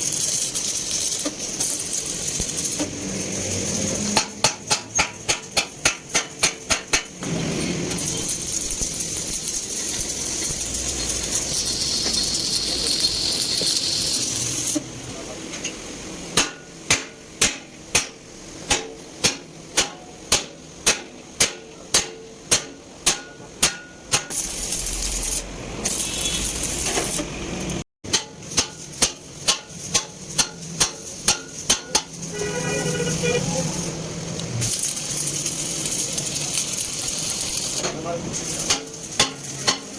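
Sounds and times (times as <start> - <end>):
steady hiss: 0.0 - 7.1, 7.8 - 20.9, 28.5 - 39.9
hammer striking metal: 4.0 - 7.4, 15.6 - 24.4, 28.0 - 32.3, 38.6 - 39.9.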